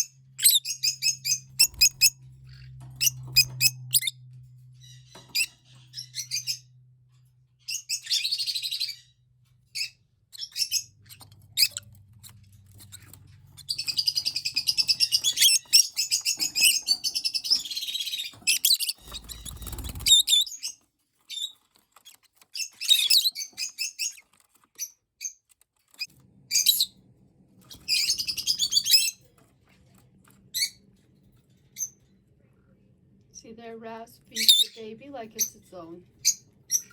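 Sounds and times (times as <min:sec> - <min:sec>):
lovebirds chirping: 0:00.0 - 0:04.2, 0:04.8 - 0:06.7, 0:07.6 - 0:21.5, 0:34.3 - 0:36.9.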